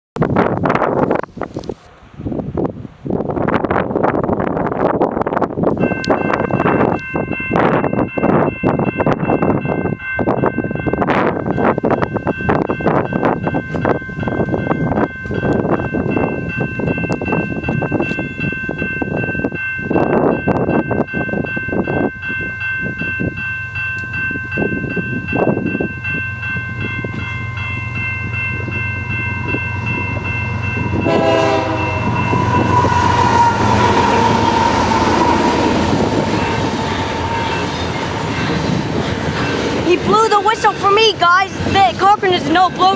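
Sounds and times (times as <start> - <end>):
wind gusting on microphone: 0.2 - 42.9
locomotive engine: 23.5 - 42.9
locomotive air horn: 31.0 - 36.0
freight cars rumbling and clattering: 31.8 - 42.9.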